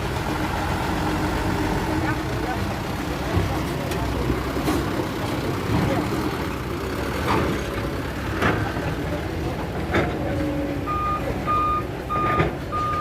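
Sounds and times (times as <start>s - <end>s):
truck engine running: 0.0s - 13.0s
reversing alarm beeping: 10.9s - 13.0s.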